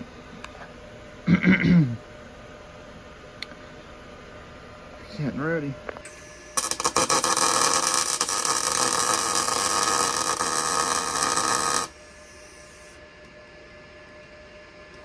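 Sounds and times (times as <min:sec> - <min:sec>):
arc welder crackling and sizzling: 0:06.0 - 0:13.0.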